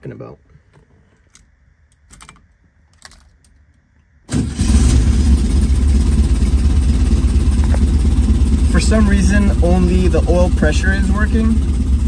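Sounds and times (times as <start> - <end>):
car engine idling: 4.3 - 12.0.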